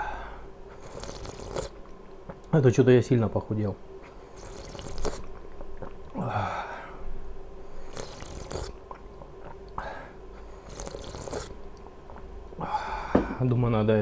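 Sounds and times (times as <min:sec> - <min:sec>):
person chewing food: 0:00.8 - 0:02.5, 0:04.4 - 0:06.2, 0:07.8 - 0:09.8, 0:10.4 - 0:12.3.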